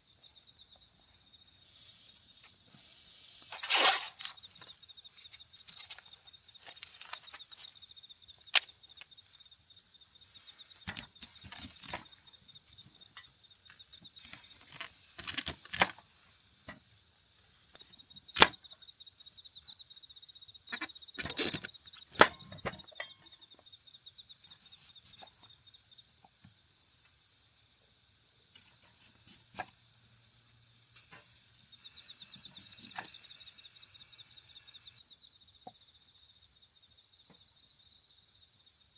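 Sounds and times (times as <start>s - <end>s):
crickets chirping: 0.0s - 38.9s
sharp cracks and knocks: 8.5s - 9.3s, 14.5s - 16.1s, 17.8s - 18.7s, 20.7s - 23.1s.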